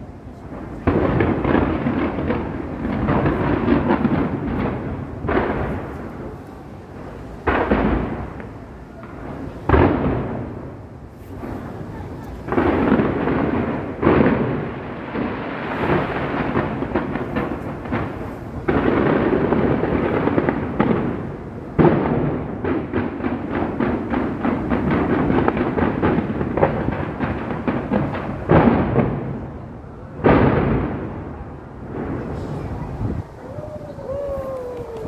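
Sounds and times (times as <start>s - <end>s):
firework booms: 0.0s - 35.0s
firework crackles: 0.0s - 35.0s.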